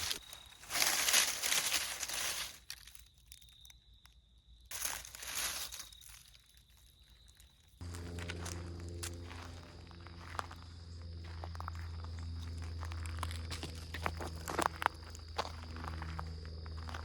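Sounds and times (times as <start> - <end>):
footsteps crunching dry leaves: 0.0 - 3.1, 4.7 - 17.0
steady low hum: 7.8 - 17.0.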